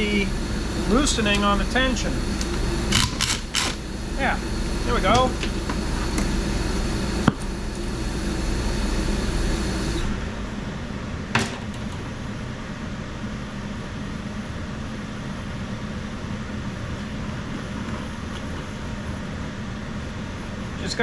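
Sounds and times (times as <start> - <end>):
torch flame hissing: 0.0 - 10.6.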